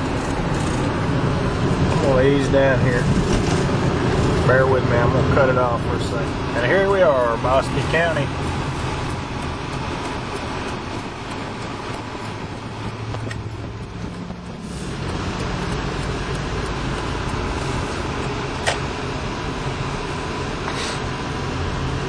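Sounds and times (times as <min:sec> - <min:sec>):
car engine and road noise: 0:00.0 - 0:22.0
sharp click: 0:18.6 - 0:18.9.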